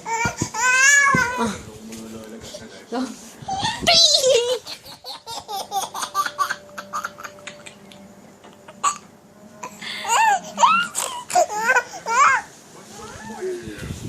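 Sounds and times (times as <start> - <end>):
toddler laughing: 3.5 - 7.8, 10.0 - 12.5.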